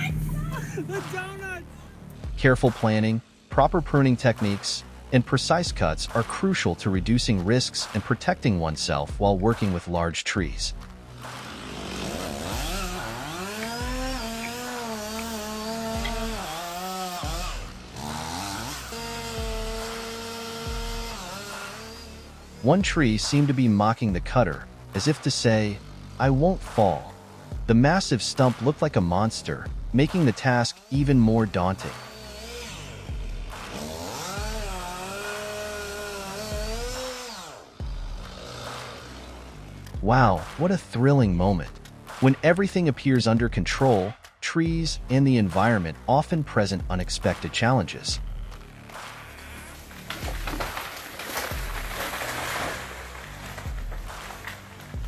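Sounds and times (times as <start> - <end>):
chainsaw revving: 10.7 - 23.6, 24.5 - 27.7, 29.7 - 40.6, 47.3 - 55.0.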